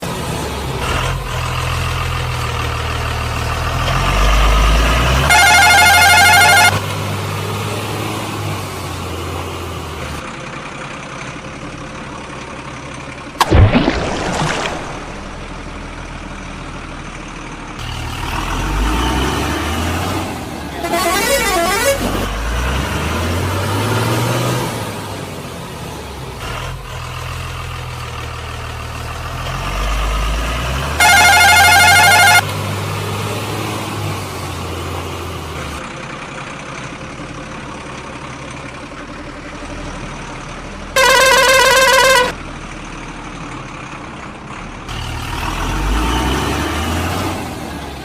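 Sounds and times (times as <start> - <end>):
truck engine humming: 0.0 - 13.8, 14.5 - 46.3
warbling multi-tone horn: 5.3 - 6.8, 20.8 - 22.2, 31.0 - 32.4, 41.0 - 42.4
loud bang: 13.4 - 15.7.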